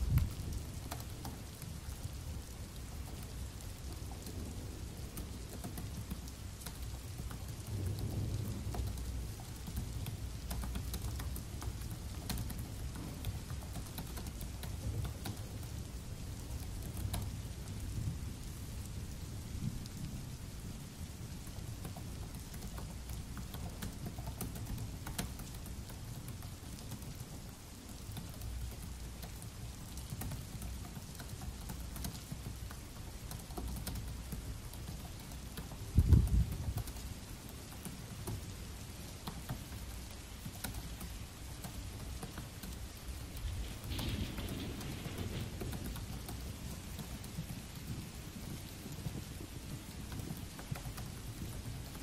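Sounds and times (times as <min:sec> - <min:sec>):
steady rain: 0:00.0 - 0:52.0
laptop keyboard typing: 0:05.2 - 0:15.7, 0:21.8 - 0:27.2, 0:27.9 - 0:38.4, 0:39.1 - 0:43.3, 0:43.9 - 0:52.0.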